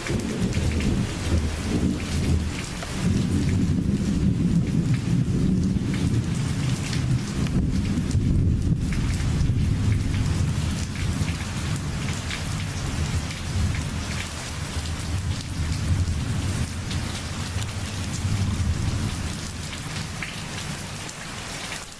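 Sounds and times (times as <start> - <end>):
deep rumble: 0.0 - 11.4
heavy rain: 0.0 - 21.9
raindrops ticking: 0.0 - 21.9.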